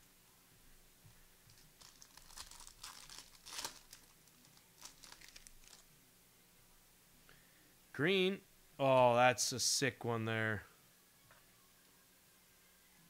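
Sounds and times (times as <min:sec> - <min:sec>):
plastic wrappers crinkling and tearing: 0:01.5 - 0:05.9.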